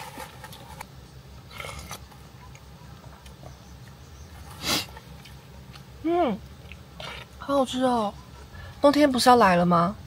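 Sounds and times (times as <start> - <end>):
person chewing food: 0.0 - 7.4.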